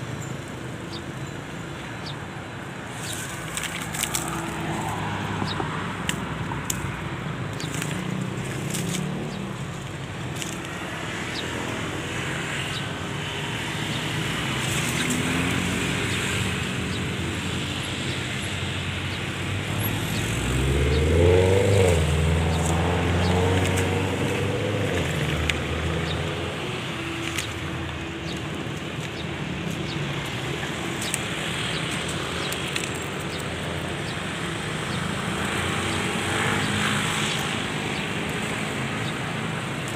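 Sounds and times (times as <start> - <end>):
vehicle engines in traffic: 0.0 - 39.9
vehicle passing close: 13.4 - 39.9.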